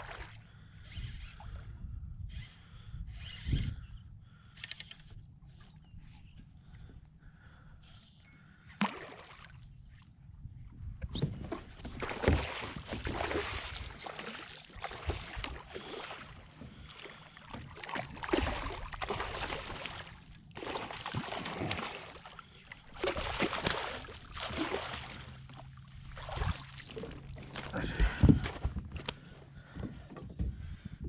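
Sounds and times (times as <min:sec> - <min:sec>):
water splashing around kayak: 0:00.0 - 0:00.6, 0:08.7 - 0:10.2, 0:10.8 - 0:30.5.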